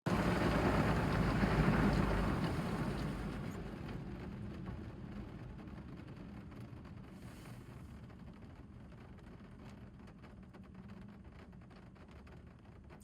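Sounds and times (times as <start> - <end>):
water spray drumming on a car: 0.1 - 3.6.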